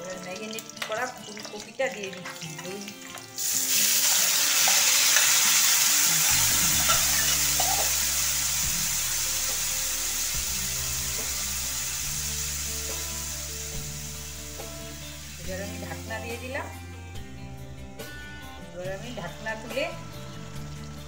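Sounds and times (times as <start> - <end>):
food sizzling in hot oil: 0.0 - 16.8.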